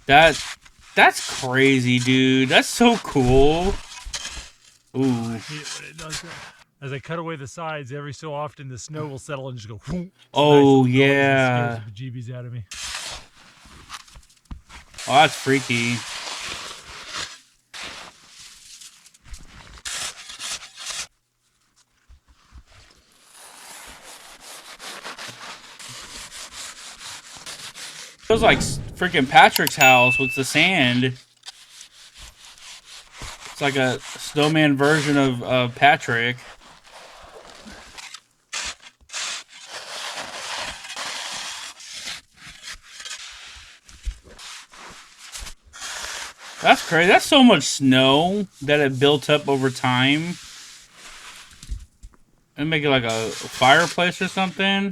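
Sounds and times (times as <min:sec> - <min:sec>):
tool scraping packed snow: 0:38.5 - 0:43.6.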